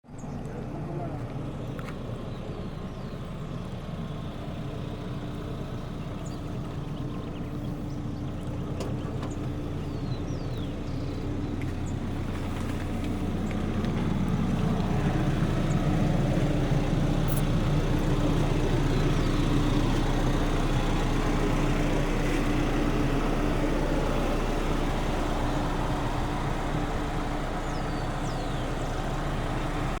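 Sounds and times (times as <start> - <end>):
car engine driving on dirt: 0.1 - 30.0.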